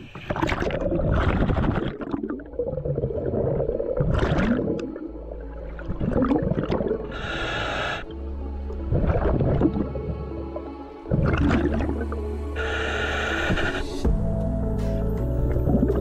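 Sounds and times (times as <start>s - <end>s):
exhaled bubbles gurgling: 0.0s - 14.0s
regulator inhalation hiss: 7.1s - 8.1s, 12.6s - 14.1s.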